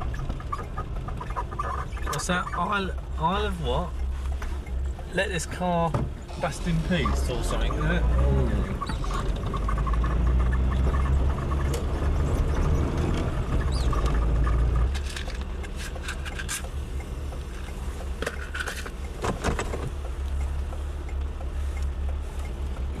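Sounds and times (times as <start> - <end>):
car cabin low rumble: 0.0 - 23.0
clicks and rattles: 13.9 - 16.8.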